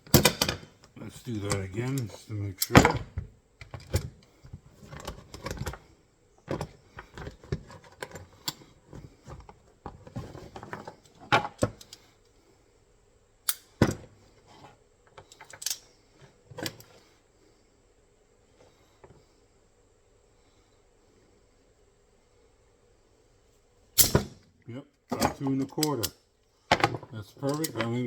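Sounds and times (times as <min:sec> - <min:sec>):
metal trap clicking and clinking: 0:27.4 - 0:28.0.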